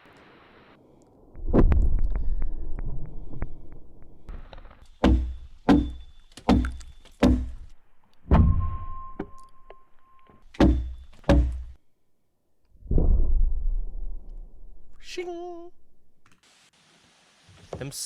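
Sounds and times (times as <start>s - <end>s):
axe chopping into log: 5.0s - 7.7s, 10.6s - 11.8s.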